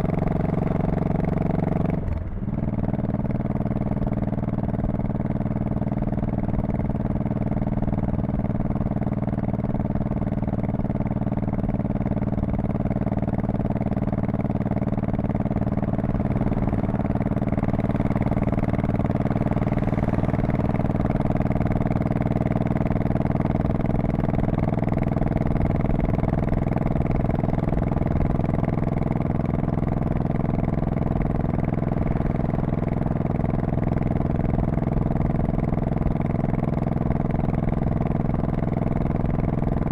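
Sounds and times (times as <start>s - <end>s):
motorcycle exhaust cruising: 0.0s - 39.9s.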